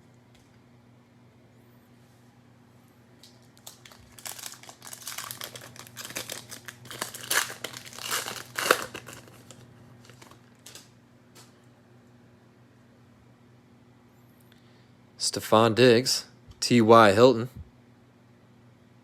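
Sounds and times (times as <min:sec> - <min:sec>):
plastic wrapper tearing and crinkling: 0:03.2 - 0:10.9.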